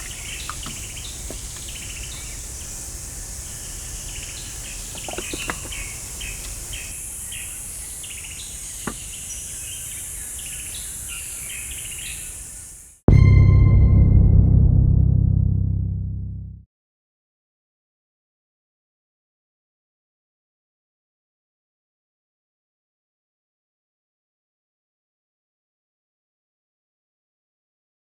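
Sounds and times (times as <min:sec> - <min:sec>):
birds or insects chirping: 0:00.0 - 0:13.0
high insect hiss: 0:00.0 - 0:13.0
deep ringing gong-like boom: 0:13.1 - 0:16.6.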